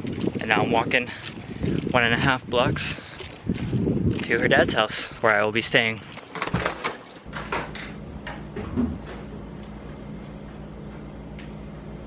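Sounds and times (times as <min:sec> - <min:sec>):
low room hum: 0:04.8 - 0:12.0.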